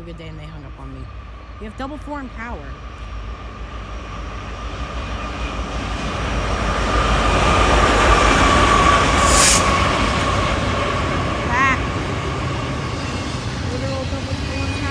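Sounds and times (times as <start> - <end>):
freight train rumble: 0.0 - 14.9
high-pitched whine: 2.3 - 14.9
burst of hiss: 9.0 - 10.3.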